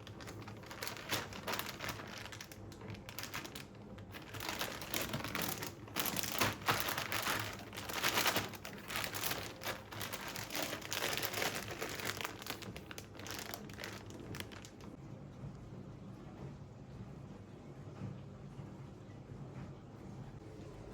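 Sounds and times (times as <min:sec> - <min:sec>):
crinkling and rustling: 0:00.0 - 0:15.0.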